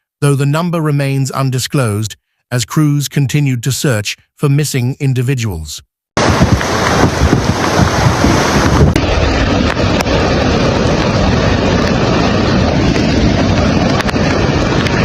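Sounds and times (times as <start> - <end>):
floodwater rushing: 6.2 - 15.0
wind buffeting microphone: 6.2 - 15.0.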